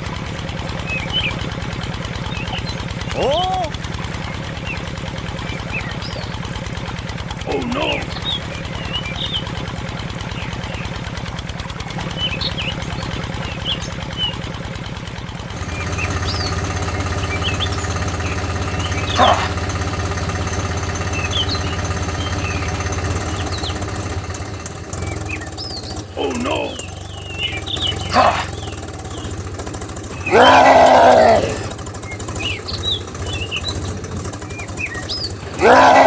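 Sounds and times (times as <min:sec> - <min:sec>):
tractor engine chugging: 0:00.0 - 0:36.0
hum: 0:15.6 - 0:36.0.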